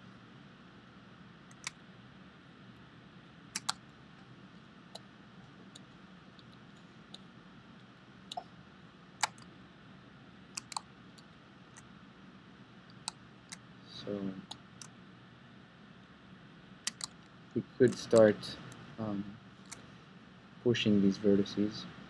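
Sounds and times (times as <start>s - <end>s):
faint room hum: 0.0s - 22.0s
mouse and keyboard clicks: 1.5s - 1.8s, 3.6s - 3.8s, 9.2s - 9.5s, 10.6s - 11.9s, 16.9s - 17.2s, 17.9s - 18.8s.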